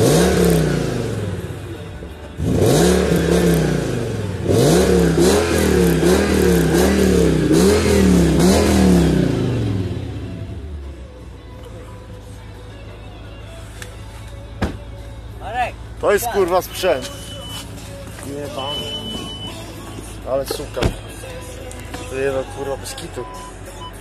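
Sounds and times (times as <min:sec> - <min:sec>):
car engine revving: 0:00.0 - 0:01.8, 0:02.4 - 0:11.0.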